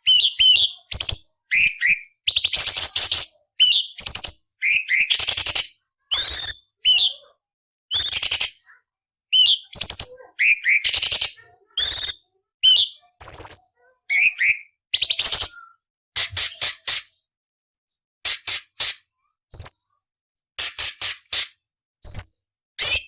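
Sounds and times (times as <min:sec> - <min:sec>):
bird singing rasping notes: 0:00.0 - 0:02.7, 0:09.3 - 0:11.1, 0:11.8 - 0:15.9.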